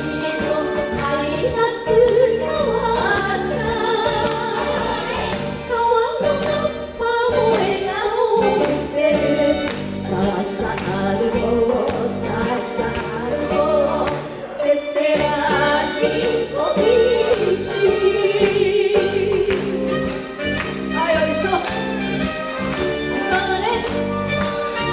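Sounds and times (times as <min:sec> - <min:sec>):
women singing: 0:00.0 - 0:24.9
horn section: 0:15.5 - 0:24.9.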